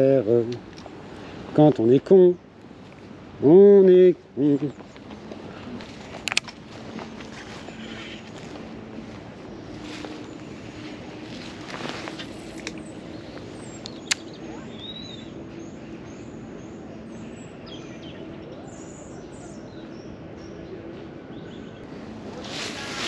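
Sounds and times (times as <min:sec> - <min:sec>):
small birds chirping: 0:00.0 - 0:23.0
sharp click: 0:13.8 - 0:14.4.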